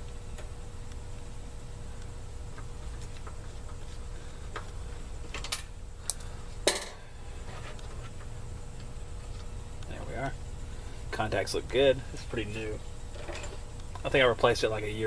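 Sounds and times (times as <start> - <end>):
steady low rumble: 8.2 - 15.0.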